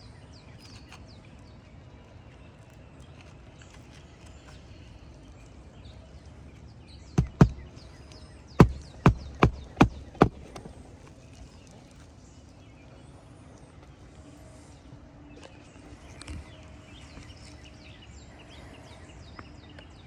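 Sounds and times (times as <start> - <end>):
hammer striking nail: 7.2 - 8.0, 8.6 - 10.8.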